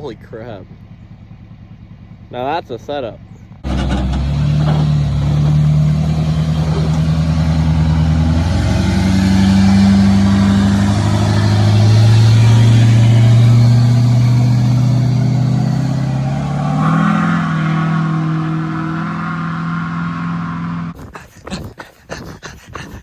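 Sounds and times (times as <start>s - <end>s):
truck engine under load: 3.2s - 21.0s.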